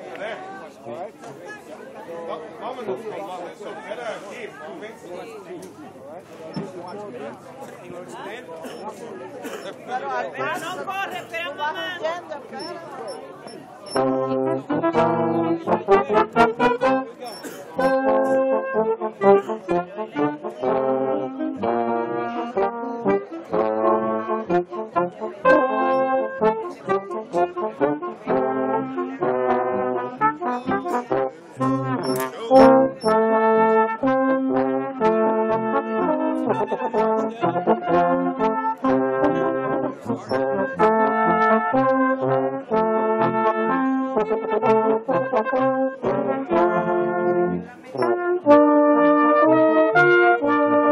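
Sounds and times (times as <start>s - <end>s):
pep band brass: 10.4s - 50.9s.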